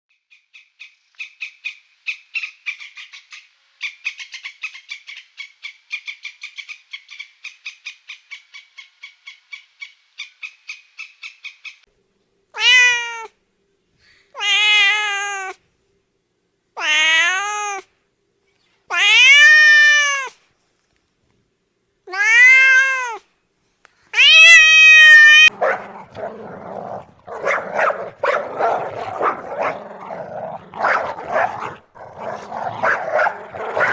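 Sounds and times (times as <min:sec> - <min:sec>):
cat meowing: 0:24.2 - 0:33.9.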